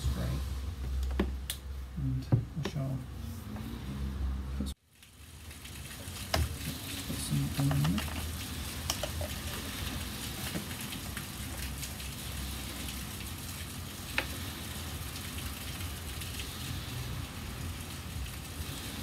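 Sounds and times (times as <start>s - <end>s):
heavy rain hissing: 0.0s - 0.8s, 5.1s - 19.0s.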